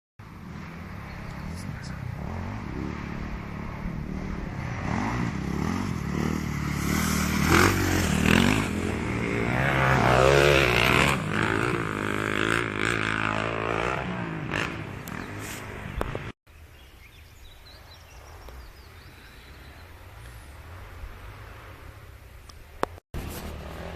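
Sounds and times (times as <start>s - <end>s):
motocross bike engines revving: 0.2s - 16.4s, 19.0s - 23.9s.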